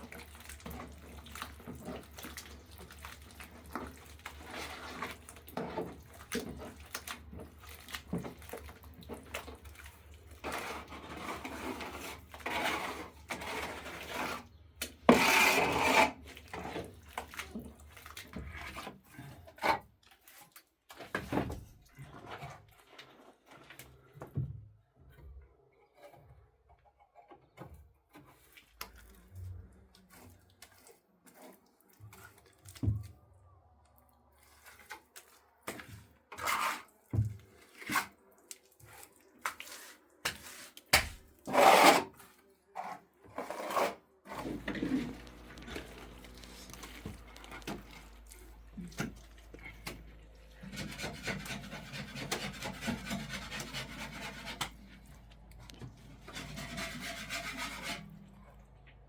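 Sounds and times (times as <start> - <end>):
hand tools scraping and knocking: 10.4 - 17.0, 35.7 - 38.2, 39.8 - 58.2
continuous rubbing: 41.4 - 58.6.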